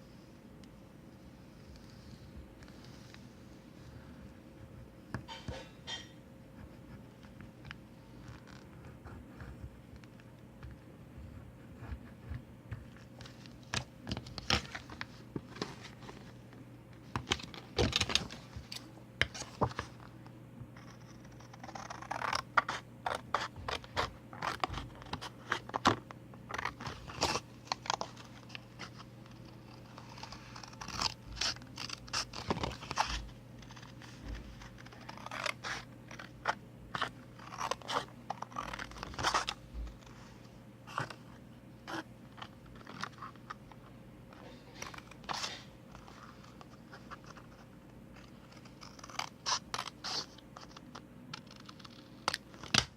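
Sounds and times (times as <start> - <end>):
scissors cutting paper: 20.8 - 33.9, 34.5 - 39.6, 48.2 - 52.9.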